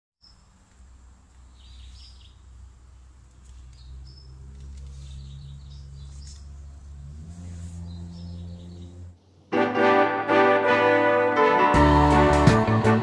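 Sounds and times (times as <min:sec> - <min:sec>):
small birds chirping: 0:00.2 - 0:09.4
low steady hum: 0:00.2 - 0:09.6.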